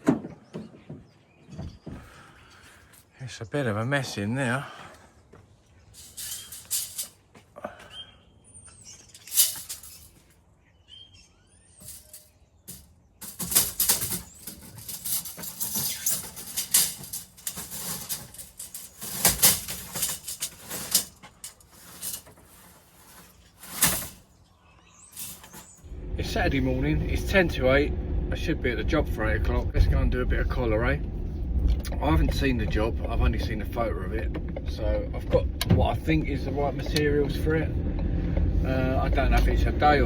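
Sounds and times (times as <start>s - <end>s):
materials rustling and clattering: 5.3s - 7.9s, 8.7s - 10.5s, 11.7s - 25.9s.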